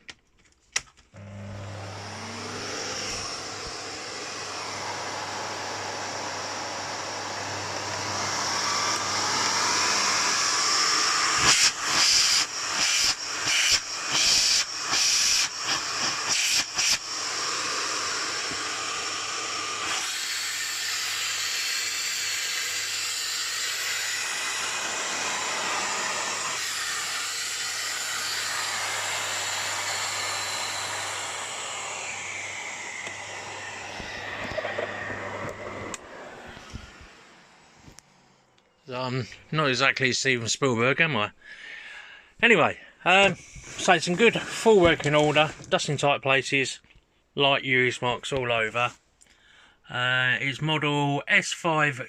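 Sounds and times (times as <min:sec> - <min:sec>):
vacuum cleaner running: 0:01.1 - 0:39.7, 0:43.1 - 0:45.7.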